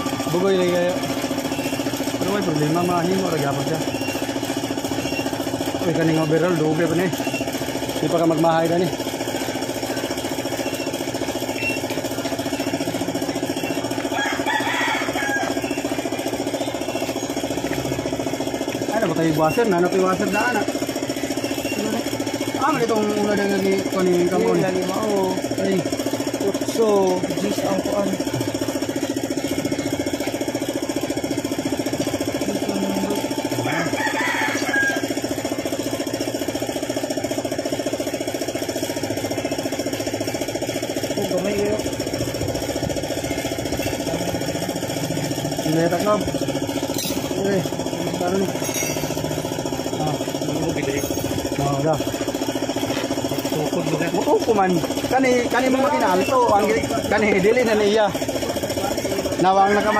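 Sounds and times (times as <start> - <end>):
hissing rattly noise: 0.0 - 59.4
engine idling: 0.0 - 59.9
rooster crowing: 13.6 - 16.3, 33.2 - 35.6, 59.4 - 59.9.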